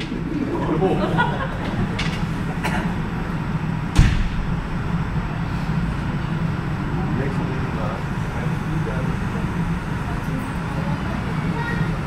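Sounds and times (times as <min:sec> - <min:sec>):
low mechanical rumble: 0:00.0 - 0:12.0
sharp loud thump: 0:03.9 - 0:04.8.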